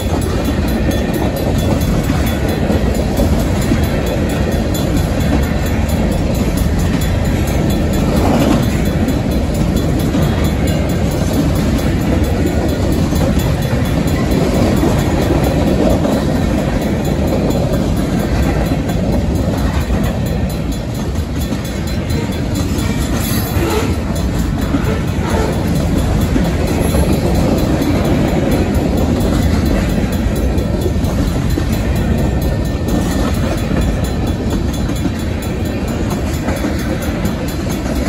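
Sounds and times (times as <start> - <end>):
freight train rolling past: 0.0 - 38.0.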